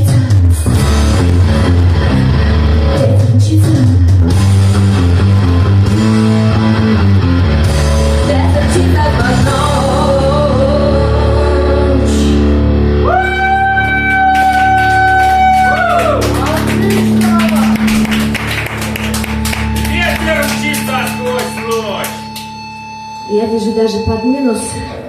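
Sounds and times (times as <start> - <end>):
rock song: 0.0 - 23.2
person singing: 8.2 - 14.0.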